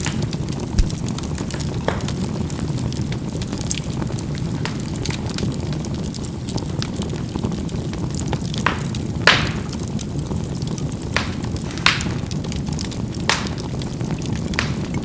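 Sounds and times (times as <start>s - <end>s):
fire crackling and popping: 0.0s - 15.0s
fire rumbling: 0.0s - 15.0s
low thump: 0.8s - 1.0s.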